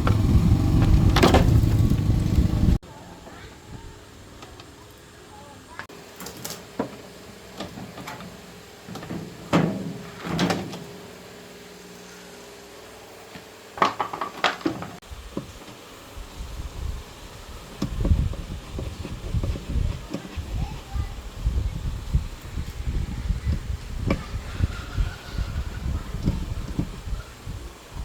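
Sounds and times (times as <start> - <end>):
parts knocking and clattering: 0.0 - 2.7, 13.8 - 15.8
low uneven rumbling: 0.0 - 2.8.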